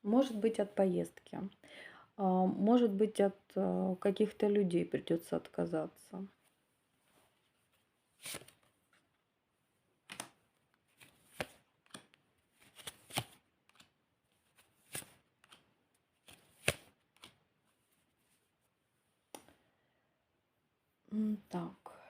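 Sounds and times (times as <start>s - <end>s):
cards shuffled and dealt: 7.6s - 9.2s, 10.0s - 18.6s.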